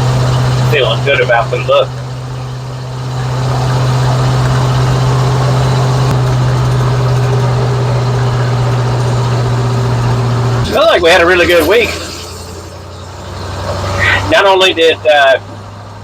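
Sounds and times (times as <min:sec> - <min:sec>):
road noise: 0:00.0 - 0:16.0
truck engine drone while driving: 0:00.0 - 0:16.0.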